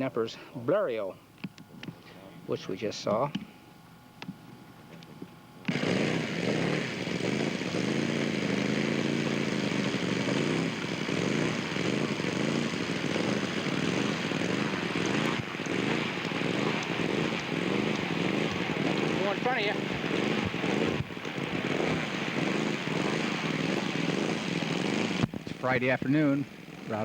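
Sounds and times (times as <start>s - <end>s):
model airplane engine running: 5.6s - 27.0s.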